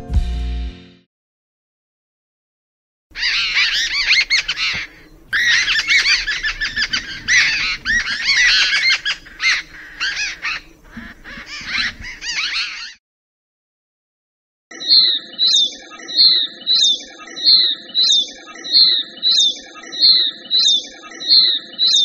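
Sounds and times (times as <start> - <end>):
birds chirping: 3.1 - 13.0, 14.7 - 22.0.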